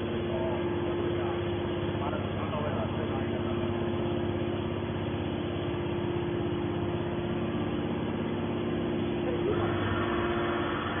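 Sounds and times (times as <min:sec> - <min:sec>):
baler power unit humming: 0:00.0 - 0:11.0.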